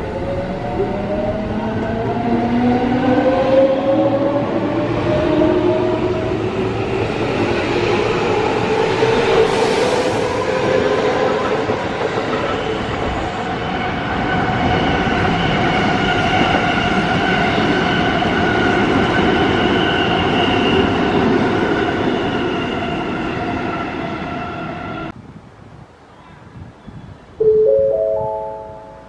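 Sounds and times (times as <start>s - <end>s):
train wheels rushing on rail: 0.2s - 25.1s
steady high tones: 27.4s - 29.0s.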